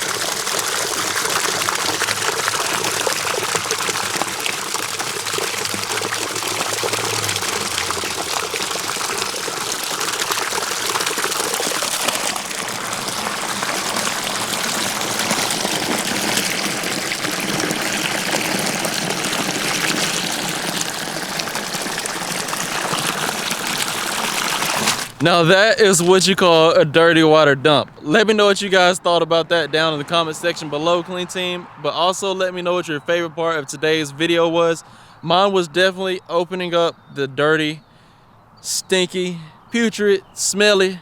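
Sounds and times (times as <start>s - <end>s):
water gushing out of tank: 0.0s - 28.0s.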